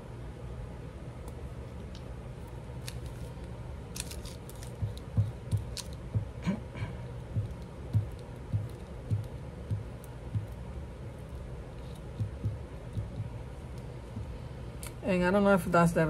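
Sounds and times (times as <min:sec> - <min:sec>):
steady low hum: 0:00.0 - 0:16.0
paper crinkles and clicks: 0:02.8 - 0:06.0
soft low thumps: 0:04.7 - 0:11.4, 0:12.0 - 0:14.6.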